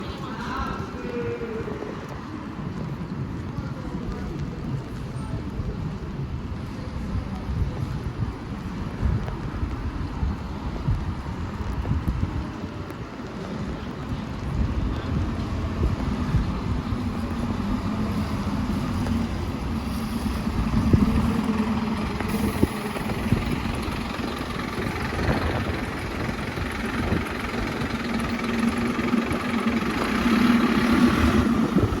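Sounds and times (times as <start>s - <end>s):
bus diesel engine drone: 12.7s - 32.0s.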